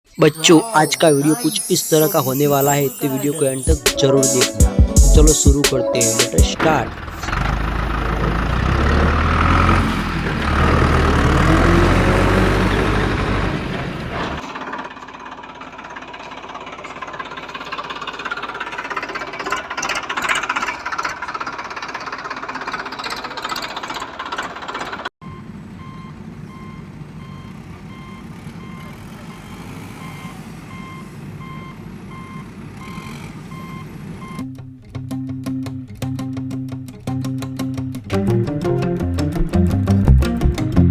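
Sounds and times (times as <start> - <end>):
heavy vehicle engine rumble: 4.9 - 34.9
repeating reversing beep: 25.2 - 34.4.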